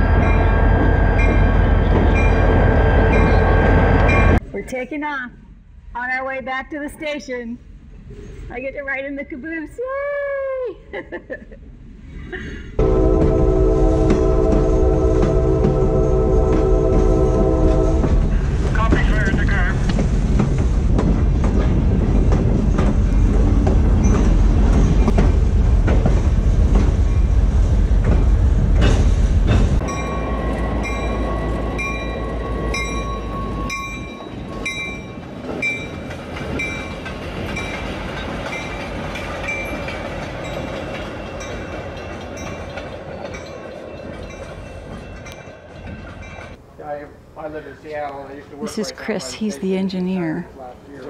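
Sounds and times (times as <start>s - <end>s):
train wheels clattering on rails: 0.0s - 4.4s, 13.2s - 46.6s
locomotive humming: 0.0s - 4.7s, 12.8s - 51.0s.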